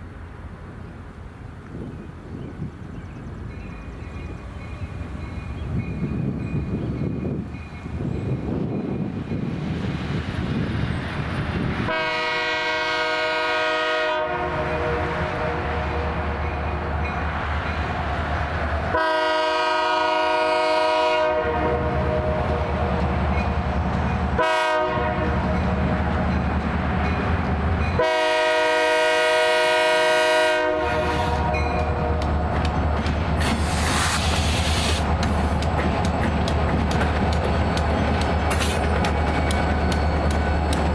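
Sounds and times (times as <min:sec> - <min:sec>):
locomotive air horn: 0:11.8 - 0:16.3, 0:18.9 - 0:22.8, 0:24.4 - 0:25.5, 0:28.0 - 0:32.3, 0:33.4 - 0:35.4
locomotive low rumble: 0:30.8 - 0:40.9.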